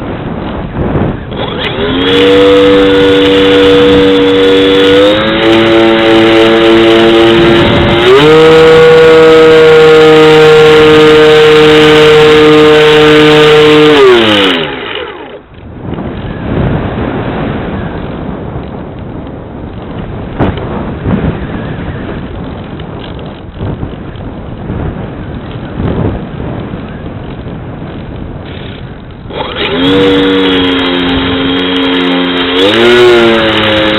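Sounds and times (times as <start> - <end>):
electric motor and propeller whining: 0.0 - 18.8, 19.7 - 24.1, 24.8 - 33.9
wind rushing over microphone: 0.0 - 33.9.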